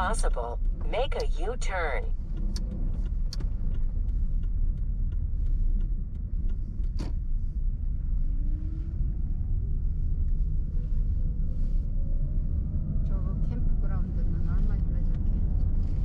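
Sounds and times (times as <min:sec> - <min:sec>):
engine and road noise rumble: 0:00.0 - 0:16.0
light ticks: 0:02.1 - 0:07.6.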